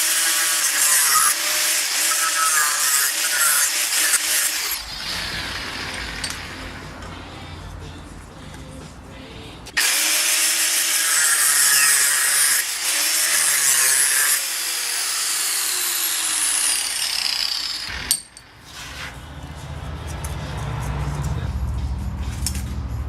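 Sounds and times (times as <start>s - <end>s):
power tool cutting: 0.0s - 6.9s, 9.8s - 18.4s.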